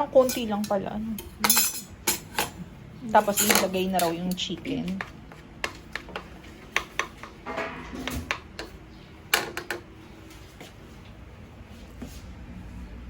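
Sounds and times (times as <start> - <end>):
kitchen utensils clicking: 0.0 - 6.2.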